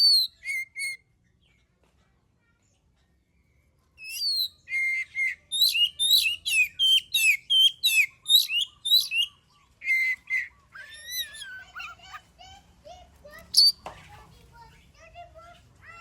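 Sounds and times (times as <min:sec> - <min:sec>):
bird singing whistled notes: 0:00.0 - 0:01.0, 0:04.0 - 0:11.6, 0:13.5 - 0:13.8.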